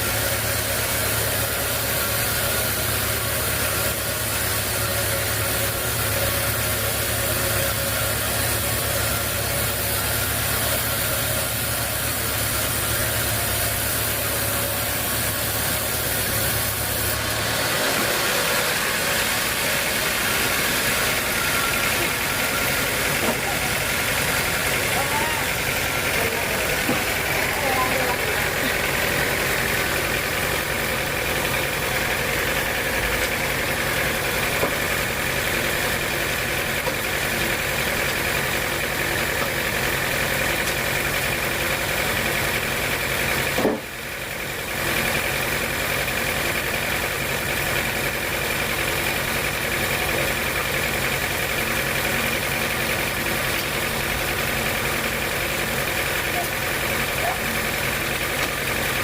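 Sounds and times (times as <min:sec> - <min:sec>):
sawmill machinery humming and whining: 0:00.0 - 0:59.0.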